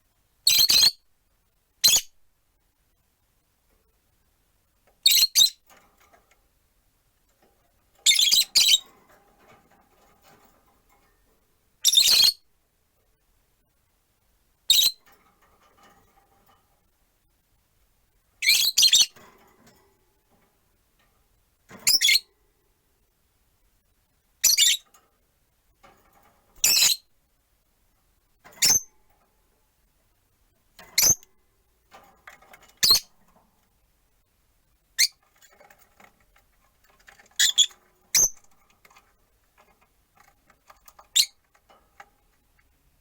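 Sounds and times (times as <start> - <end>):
lovebirds shrill calls: 37.4 - 38.4.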